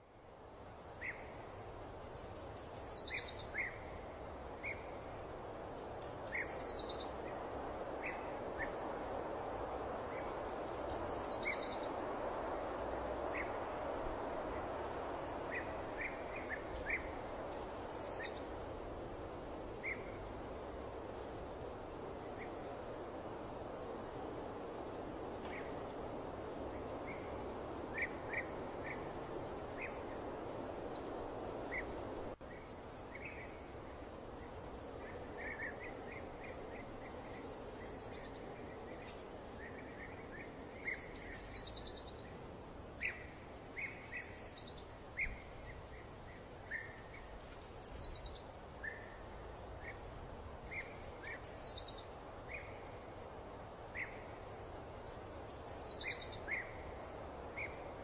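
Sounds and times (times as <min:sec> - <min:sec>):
steady rushing noise: 0:03.8 - 0:44.2.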